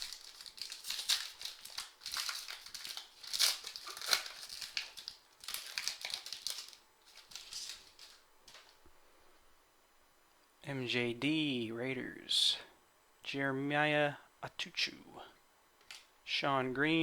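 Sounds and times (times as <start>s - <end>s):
foil wrappers crinkling and tearing: 0.0s - 8.8s.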